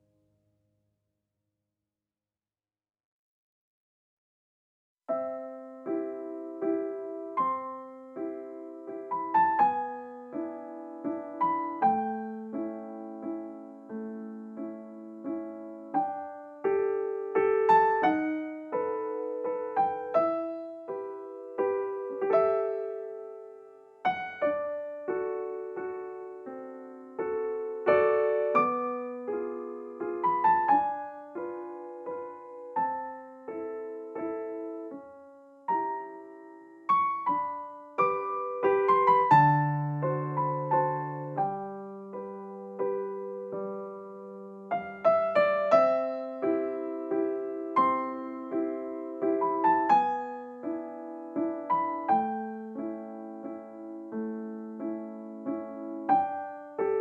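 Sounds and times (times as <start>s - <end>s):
gentle piano music: 5.1s - 57.0s.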